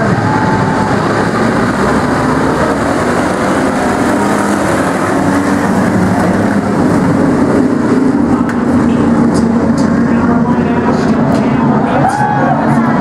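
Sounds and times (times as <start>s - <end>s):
race truck engines at full throttle: 0.0s - 13.0s.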